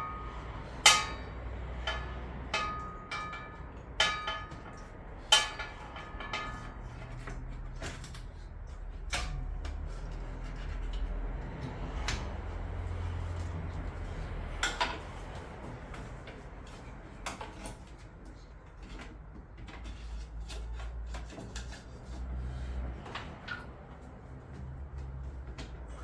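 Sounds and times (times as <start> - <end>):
tools clicking and knocking: 0.0 - 12.4.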